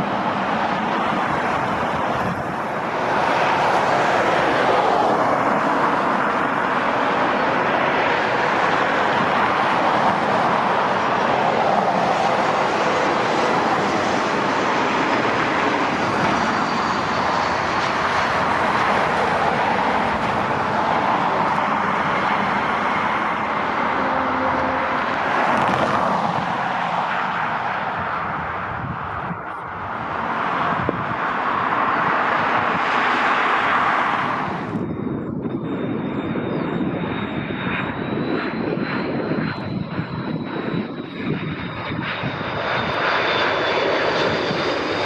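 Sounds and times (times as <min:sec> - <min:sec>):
jet engine noise: 0:00.0 - 0:45.0.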